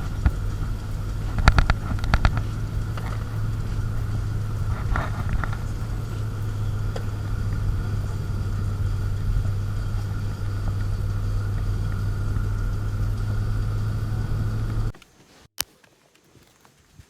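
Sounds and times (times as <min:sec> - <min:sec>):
car engine droning: 0:00.0 - 0:15.0.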